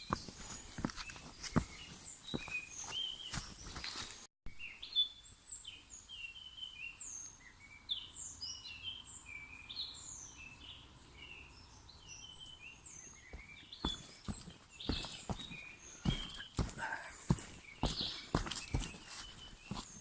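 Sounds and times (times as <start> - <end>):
footsteps: 0.0 - 4.3, 13.3 - 20.0
forest birds chirping and whistling: 0.0 - 20.0.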